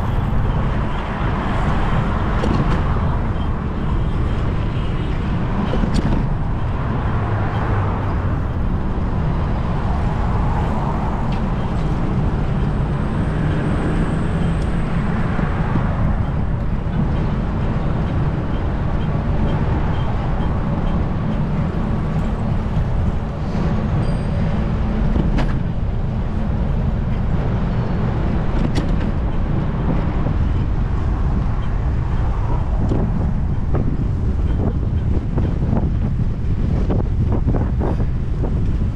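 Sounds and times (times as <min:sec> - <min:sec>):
bicycle road noise: 0:00.0 - 0:38.9
city traffic: 0:00.0 - 0:38.9
wind rumble on microphone: 0:00.0 - 0:38.9.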